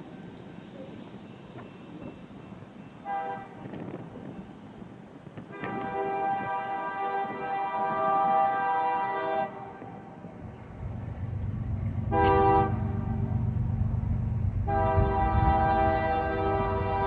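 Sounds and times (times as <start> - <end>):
locomotive engine rumble: 0.0 - 17.0
locomotive air horn: 3.0 - 3.8, 5.5 - 10.0, 12.1 - 13.4, 14.6 - 17.0.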